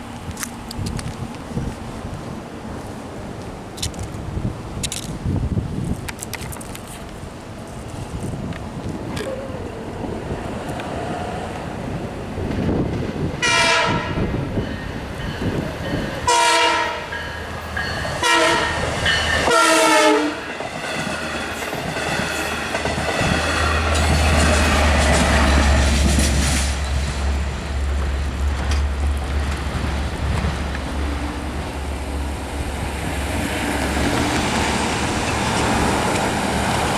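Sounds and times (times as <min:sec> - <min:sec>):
train coaches clickety-clack: 0:00.0 - 0:36.9
train horn: 0:13.4 - 0:14.3, 0:16.2 - 0:17.2, 0:18.2 - 0:20.5
locomotive engine rumble: 0:20.6 - 0:36.9.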